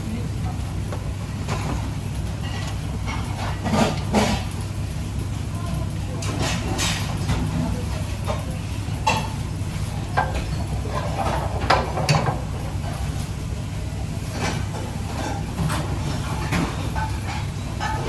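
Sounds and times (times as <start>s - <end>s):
utensils clinking against cookware: 14.3s - 18.0s.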